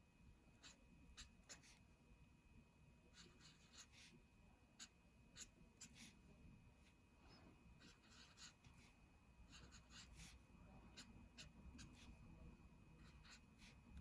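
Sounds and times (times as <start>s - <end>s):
colouring strokes on paper: 7.8s - 12.2s.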